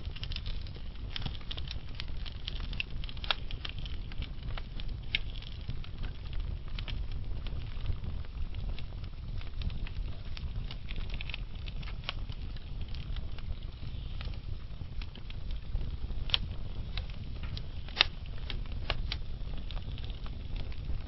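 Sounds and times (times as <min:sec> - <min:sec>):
low steady fire rumble: 0:00.0 - 0:21.0
wood fire crackling and popping: 0:00.0 - 0:21.0.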